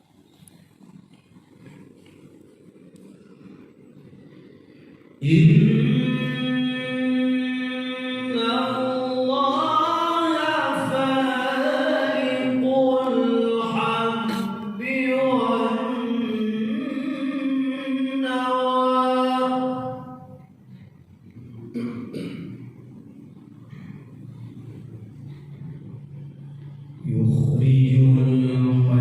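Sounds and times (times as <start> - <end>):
man reciting melodically: 5.2 - 20.2, 24.7 - 29.0.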